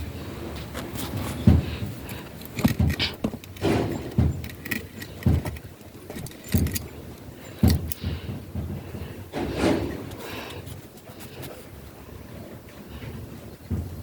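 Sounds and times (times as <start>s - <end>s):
sharp clicks and knocks: 0.7s - 10.8s.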